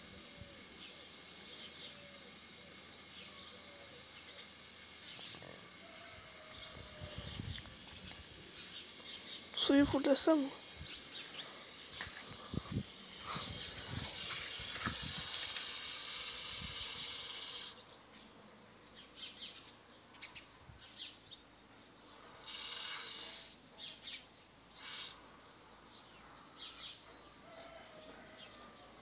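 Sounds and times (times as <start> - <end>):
small birds chirping: 0.0 - 15.8
steady hiss: 0.0 - 17.9, 22.3 - 23.6, 24.7 - 25.4.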